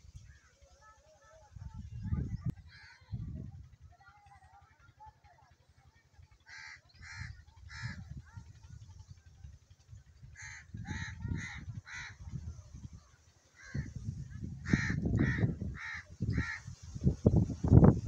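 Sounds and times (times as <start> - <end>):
low rumbling on microphone: 7.1 - 13.0, 13.7 - 18.0.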